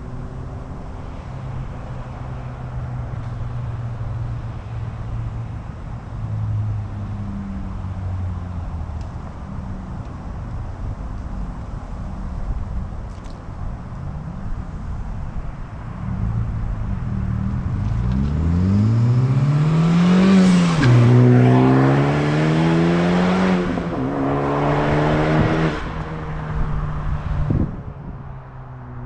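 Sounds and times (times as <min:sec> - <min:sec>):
car engine accelerating hard: 0:16.0 - 0:27.9.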